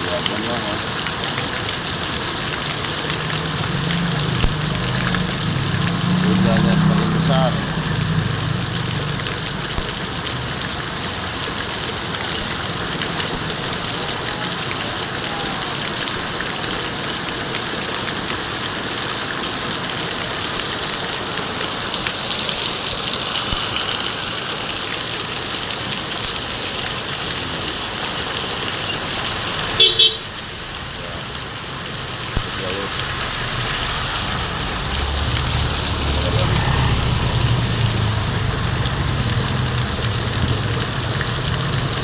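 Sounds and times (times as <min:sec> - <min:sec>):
heavy rain hissing: 0:00.0 - 0:42.0
vehicle engine running: 0:03.4 - 0:11.1.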